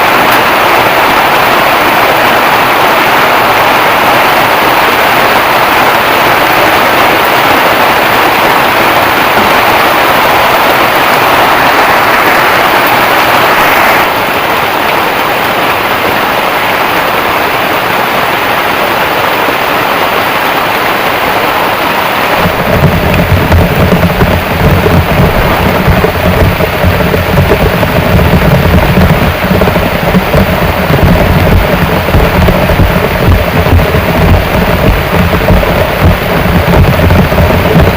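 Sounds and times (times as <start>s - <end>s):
heavy rain hissing: 0.0s - 37.9s
deep low rumble: 22.4s - 37.9s.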